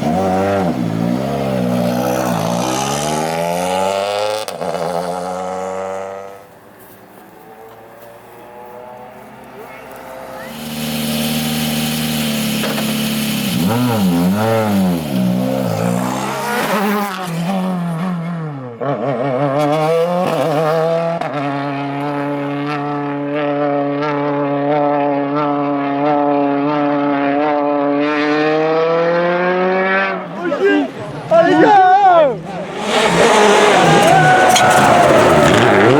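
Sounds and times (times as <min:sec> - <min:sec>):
rally car engine revving: 0:00.0 - 0:06.4, 0:08.4 - 0:35.9.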